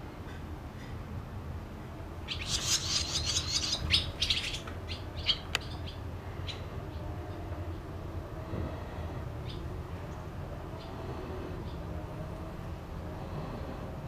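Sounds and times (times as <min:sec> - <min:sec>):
swallows twittering: 0:02.3 - 0:06.7.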